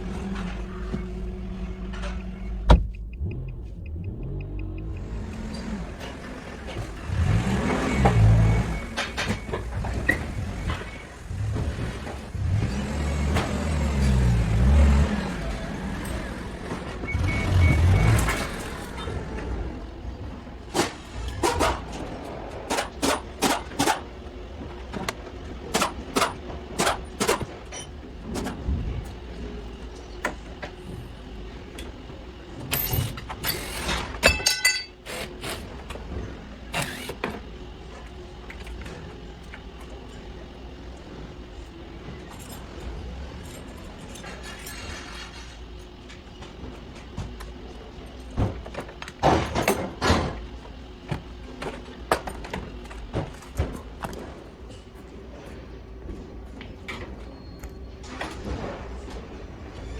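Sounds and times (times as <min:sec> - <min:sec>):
metallic knocks and clanks of tools: 0:32.6 - 0:35.6.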